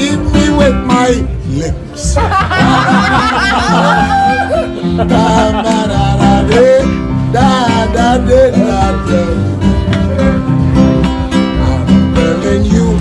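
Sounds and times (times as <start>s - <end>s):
person singing: 0.0s - 10.4s
acoustic guitar strumming: 0.0s - 13.0s.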